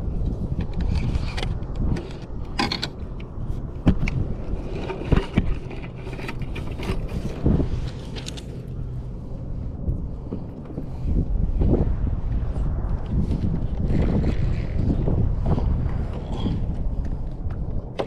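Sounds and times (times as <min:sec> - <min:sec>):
wind rumble on microphone: 0:00.0 - 0:18.0
fishing gear knocking and scraping: 0:00.2 - 0:08.9, 0:13.0 - 0:18.0.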